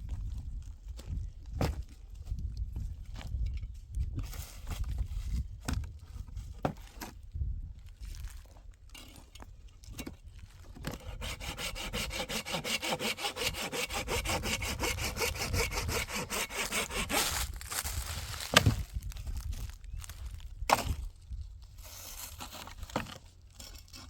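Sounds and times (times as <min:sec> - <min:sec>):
hand saw cutting wood: 0:10.8 - 0:18.8.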